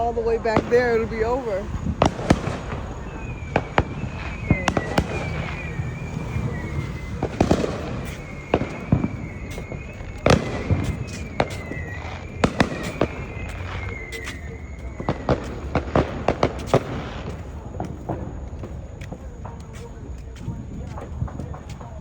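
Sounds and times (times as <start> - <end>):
fireworks bangs and pops: 0.0 - 22.0
faint high wavering whistle: 0.7 - 17.6
low rumble: 1.4 - 22.0.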